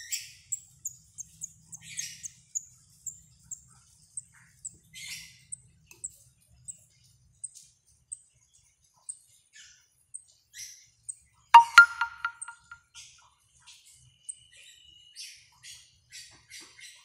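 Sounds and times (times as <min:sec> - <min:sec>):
bird chirping: 0:00.0 - 0:09.3, 0:11.6 - 0:12.8.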